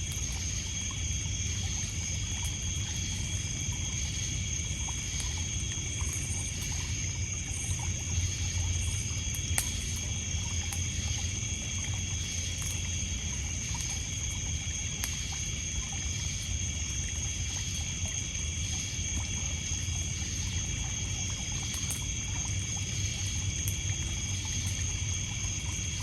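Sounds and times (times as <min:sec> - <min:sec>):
crickets and insects chirping: 0:00.0 - 0:26.0
burning wood crackles: 0:04.8 - 0:15.4, 0:19.1 - 0:26.0.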